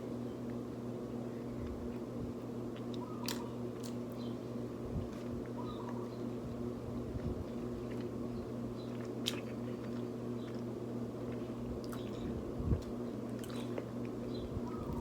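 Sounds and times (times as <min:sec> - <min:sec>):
wet chewing: 0:07.2 - 0:15.0.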